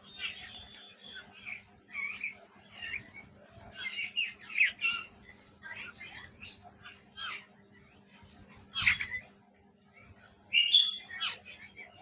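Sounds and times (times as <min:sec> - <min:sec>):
parrot chirping: 0:00.0 - 0:07.6.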